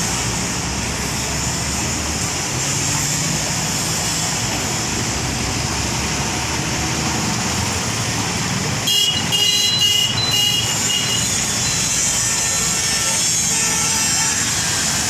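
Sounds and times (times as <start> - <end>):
vehicle and road noise: 0.0 - 15.0
high-pitched squealing tone: 9.2 - 15.0.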